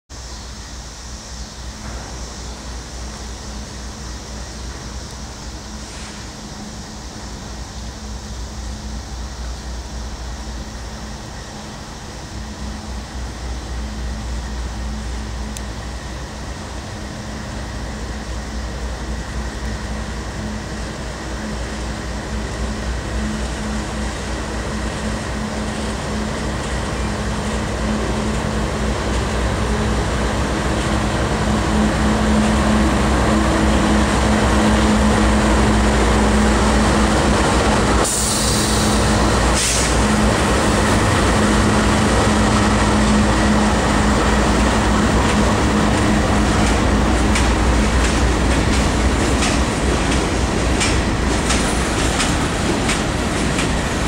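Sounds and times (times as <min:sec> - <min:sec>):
diesel locomotive engines humming: 0:00.1 - 0:54.0
wheels clicking over rail joints: 0:45.2 - 0:54.0.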